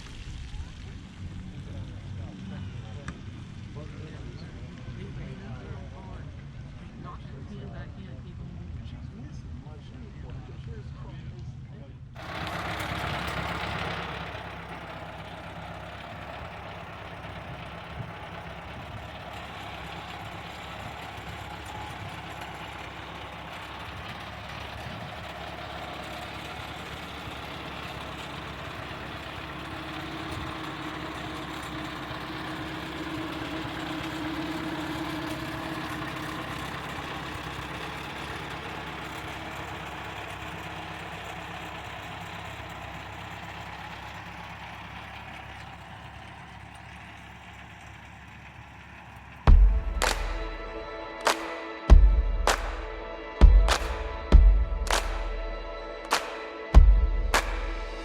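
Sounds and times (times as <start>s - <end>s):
tractor engine chugging: 12.2s - 58.0s.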